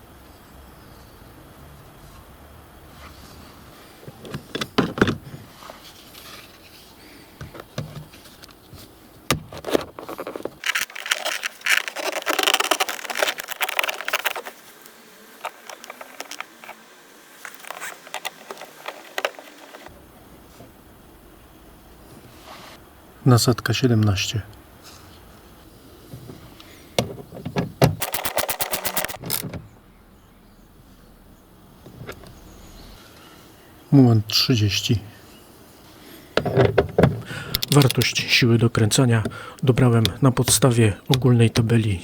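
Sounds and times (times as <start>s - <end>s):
tools and metal parts rattling: 27.9s - 29.6s, 36.4s - 38.3s.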